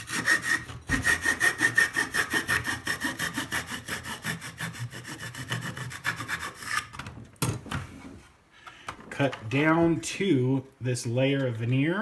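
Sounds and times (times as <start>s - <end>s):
hand saw cutting wood: 0.0s - 7.1s.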